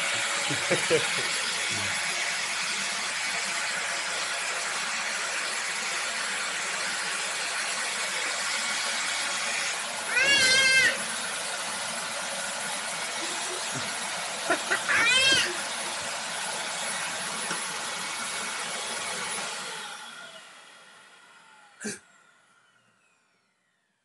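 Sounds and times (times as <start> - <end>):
vacuum cleaner running: 0.0 - 24.0
baby squealing: 10.1 - 11.0, 14.7 - 15.6.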